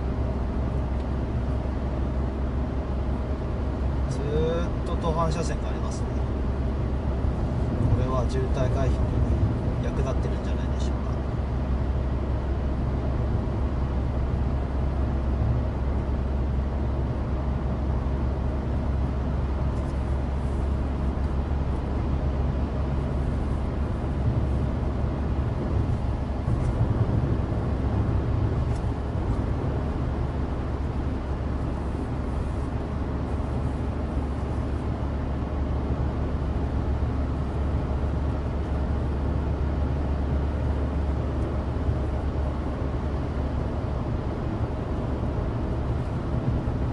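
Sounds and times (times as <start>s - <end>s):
car engine under load: 0.0s - 46.9s
tyres humming on asphalt: 0.0s - 46.9s.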